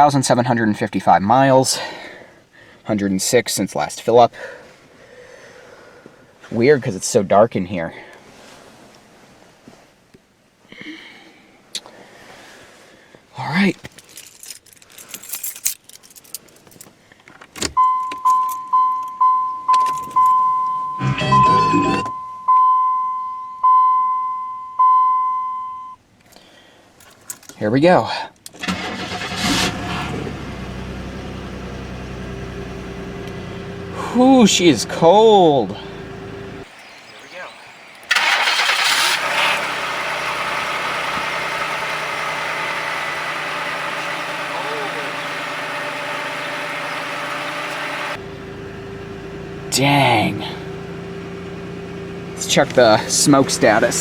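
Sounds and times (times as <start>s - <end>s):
car keys jangling: 13.9s - 20.4s
dashboard warning chime: 17.8s - 26.0s
car engine cold start idling: 28.6s - 49.6s, 50.7s - 54.0s.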